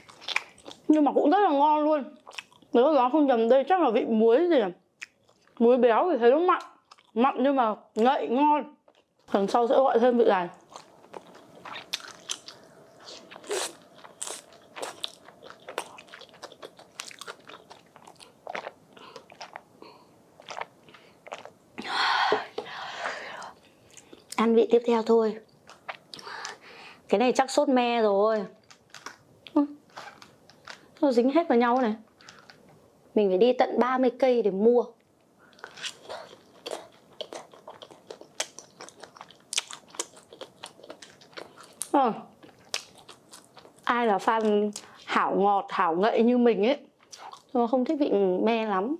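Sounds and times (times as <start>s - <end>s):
chewing with mouth clicks and smacks: 0.0s - 1.0s, 2.2s - 2.7s, 5.0s - 5.6s, 6.8s - 7.2s, 8.8s - 9.3s, 10.6s - 19.7s, 20.4s - 21.6s, 25.4s - 26.6s, 35.5s - 45.0s, 47.0s - 47.5s
crunch or rustle: 29.8s - 31.0s.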